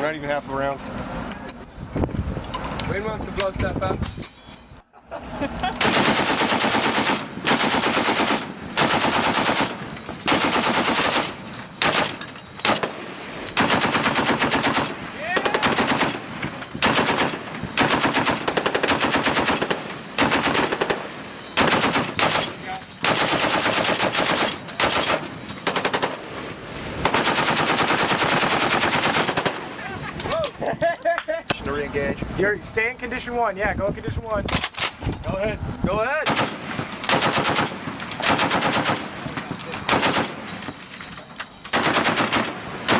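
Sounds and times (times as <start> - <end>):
machine-gun bursts: 5.8 - 13.0, 13.6 - 26.2, 27.0 - 29.7, 36.2 - 39.2, 39.8 - 40.5, 41.7 - 42.9.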